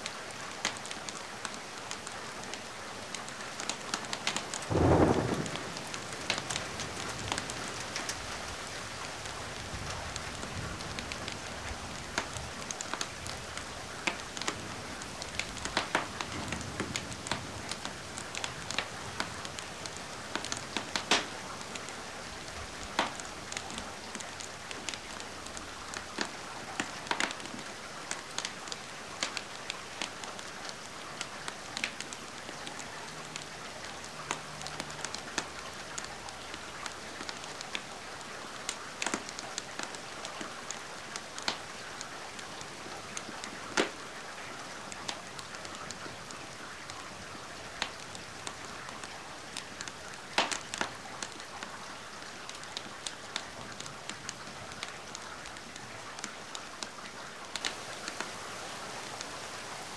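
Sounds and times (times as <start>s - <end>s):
wood fire crackling: 0.0s - 59.9s
rain hissing: 4.0s - 27.8s, 57.5s - 59.9s.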